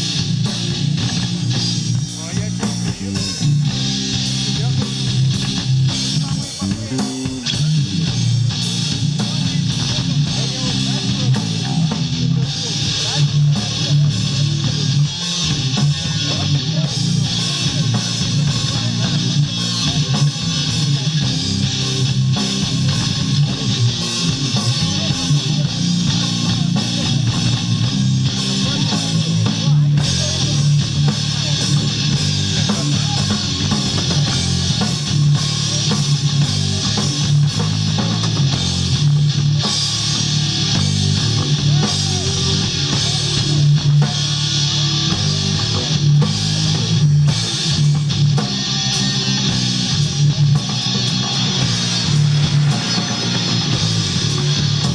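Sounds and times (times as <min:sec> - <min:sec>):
rock music on guitar and drums: 0:00.0 - 0:54.9.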